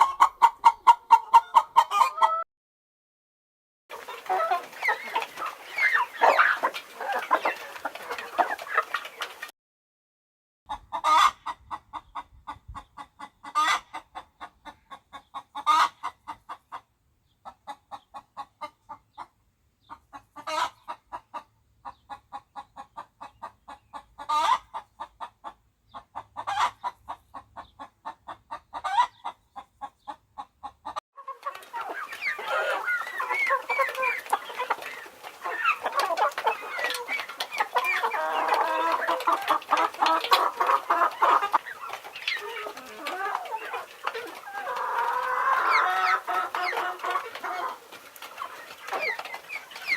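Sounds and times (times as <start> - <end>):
chicken clucking: 0.0 - 2.4, 3.9 - 9.5, 10.7 - 49.9
many chickens chattering: 0.0 - 2.4, 3.9 - 9.5, 10.7 - 49.9
chicken squawk: 4.0 - 9.2, 31.2 - 47.8.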